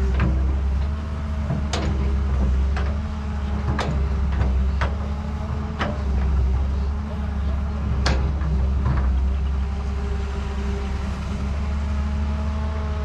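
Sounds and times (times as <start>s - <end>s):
excavator running: 0.0s - 13.0s.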